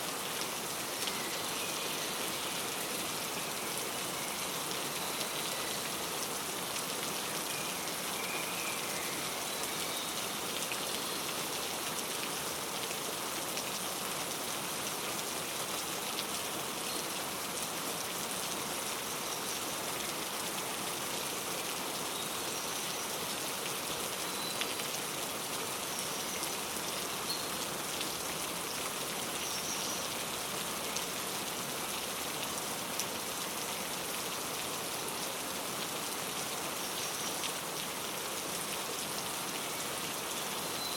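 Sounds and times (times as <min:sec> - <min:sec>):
steady rain hissing: 0:00.0 - 0:40.9
raindrops ticking on a surface: 0:00.4 - 0:08.3, 0:21.8 - 0:34.8
faint bird chirps: 0:39.7 - 0:40.9.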